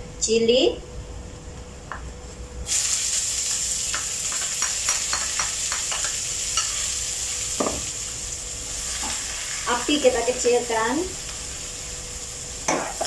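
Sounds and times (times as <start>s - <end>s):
chillies sizzling in hot oil: 2.6s - 13.0s.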